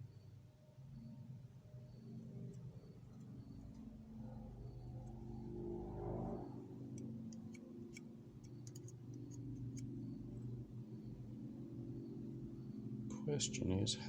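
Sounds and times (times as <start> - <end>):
steady low hum: 0.0 - 14.0
small metallic clicks: 6.9 - 10.0.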